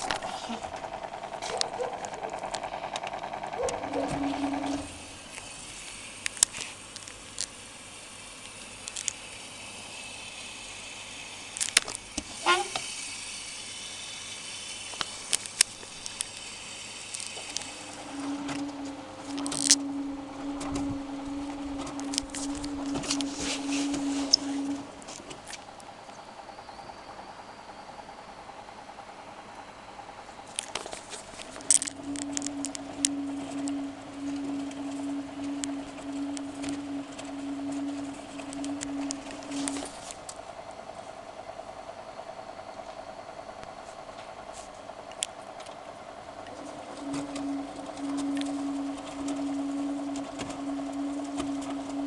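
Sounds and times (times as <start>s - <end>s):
washing machine whirring: 0.0s - 52.0s
fast even ticking: 30.6s - 40.0s.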